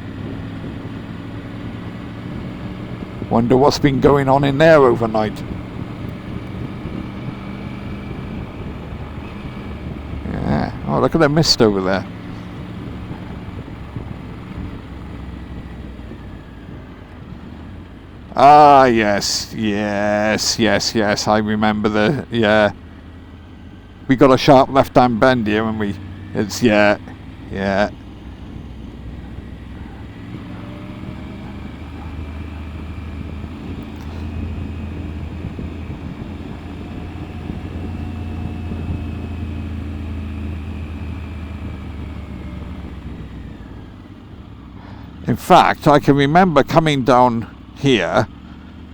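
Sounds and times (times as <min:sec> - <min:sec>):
wind rush on microphone: 0:00.0 - 0:04.1, 0:05.0 - 0:19.0, 0:28.0 - 0:39.8
motorcycle engine running: 0:00.0 - 0:48.9.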